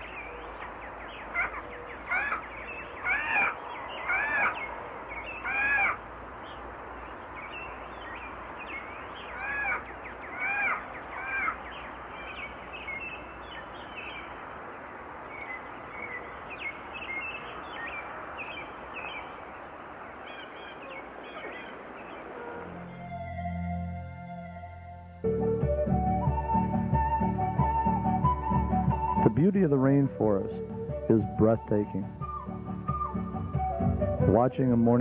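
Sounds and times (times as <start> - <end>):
harsh caw-like bird calls: 0.0 - 6.6, 8.7 - 13.0, 20.1 - 22.8
steady background hiss: 0.0 - 35.0
high bird chirps: 15.2 - 23.0.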